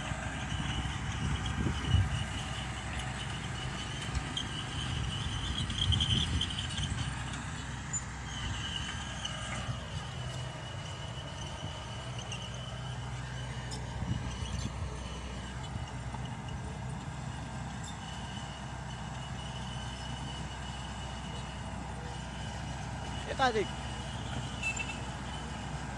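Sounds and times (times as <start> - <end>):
high squeal from running gear: 0.0 - 7.3, 7.9 - 16.7, 23.2 - 25.8
bulldozer diesel engine under load: 0.0 - 25.9.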